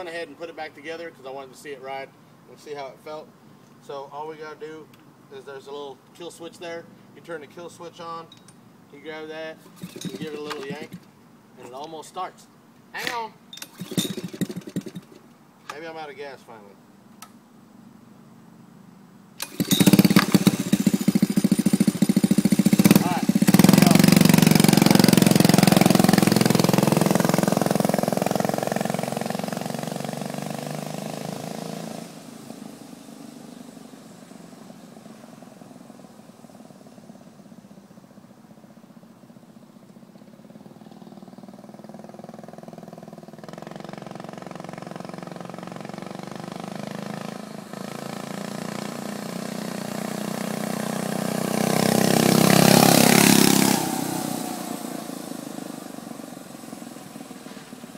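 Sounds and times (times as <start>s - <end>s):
mini bike engine running: 9.7s - 11.1s, 13.6s - 15.2s, 19.4s - 32.0s, 40.8s - 57.8s.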